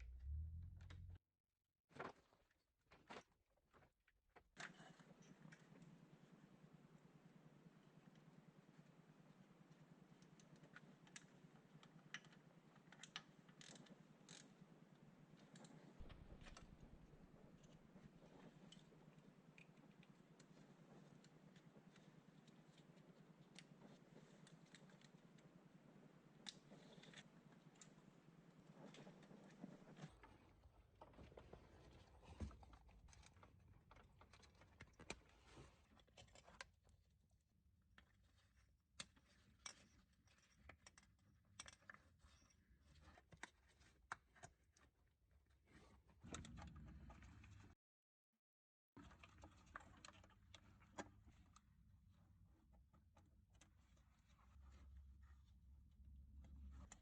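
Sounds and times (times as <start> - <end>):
low rumble: 0.0 - 1.2
faint small clicks and knocks: 9.7 - 37.1, 38.0 - 45.0.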